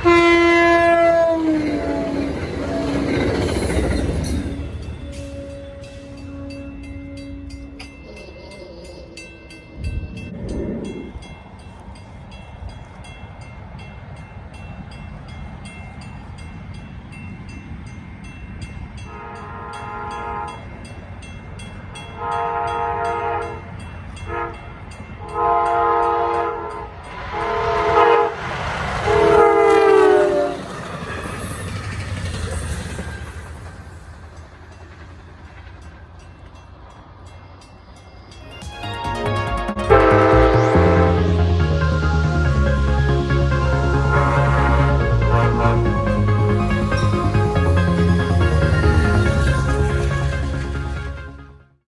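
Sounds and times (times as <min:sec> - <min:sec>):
train air horn blasts: 0:00.0 - 0:03.4, 0:04.4 - 0:08.4, 0:19.1 - 0:20.8, 0:22.0 - 0:30.6, 0:39.9 - 0:41.7, 0:43.0 - 0:51.6
train rumble: 0:00.0 - 0:51.8.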